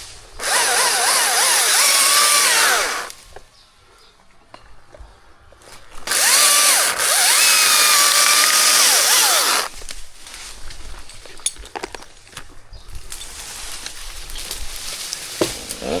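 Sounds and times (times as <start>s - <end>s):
chainsaw revving: 0.4s - 3.2s, 6.0s - 9.7s.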